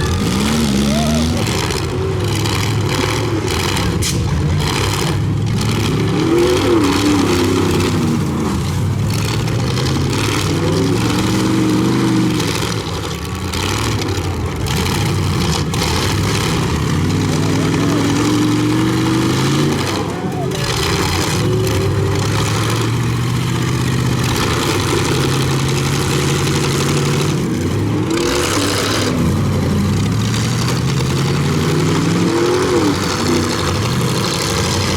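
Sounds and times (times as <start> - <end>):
truck engines revving: 0.0 - 34.9
trucks ramming each other: 0.0 - 34.9.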